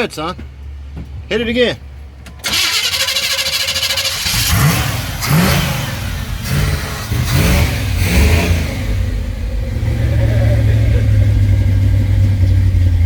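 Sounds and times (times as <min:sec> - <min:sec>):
starter motor cranking: 0:02.4 - 0:05.9
truck engine revving: 0:02.4 - 0:13.0.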